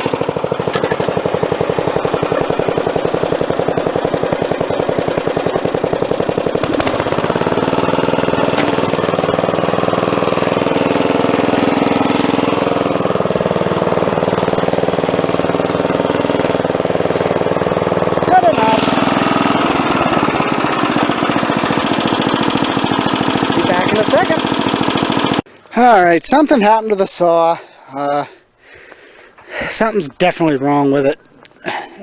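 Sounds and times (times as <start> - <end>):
lawn tractor engine putter: 0.0 - 25.9.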